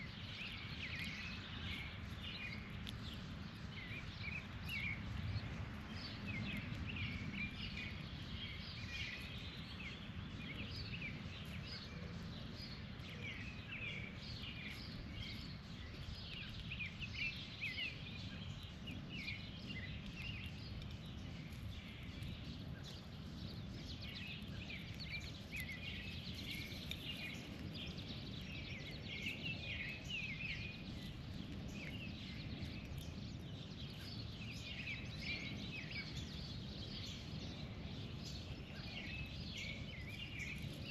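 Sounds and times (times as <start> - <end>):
steady low rumble: 0.0 - 40.9
birds chirping and calling: 5.8 - 40.9.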